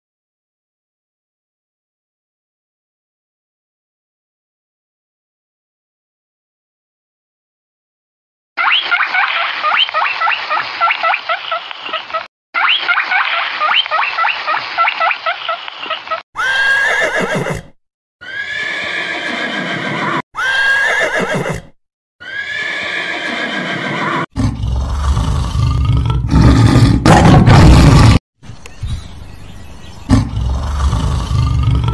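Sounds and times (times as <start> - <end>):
horse whinnies: 16.4 - 24.3
tiger growling roar: 24.0 - 28.2, 30.1 - 31.9.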